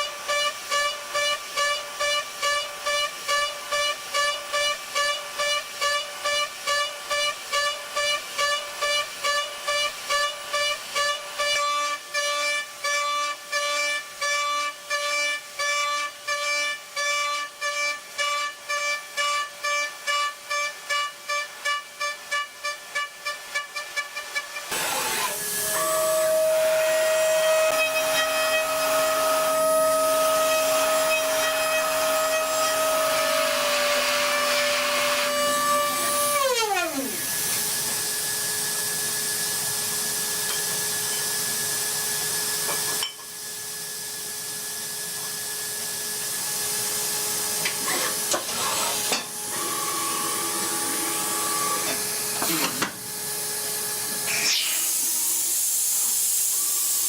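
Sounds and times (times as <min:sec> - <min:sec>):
metal lathe whine: 0:24.5 - 0:57.0
hiss: 0:24.6 - 0:27.0, 0:53.6 - 0:57.0.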